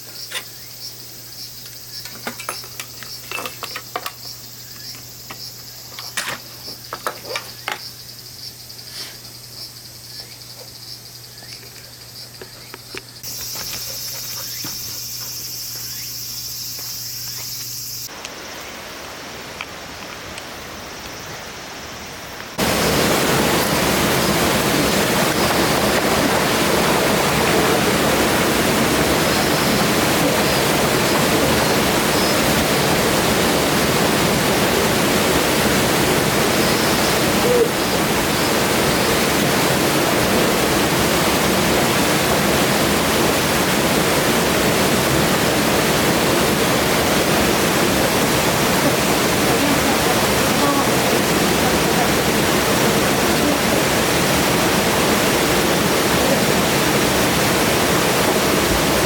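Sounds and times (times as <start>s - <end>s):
high insect chorus: 0.0s - 59.0s
light clicks and clinks: 2.0s - 7.9s
mountain stream rushing: 18.1s - 59.0s.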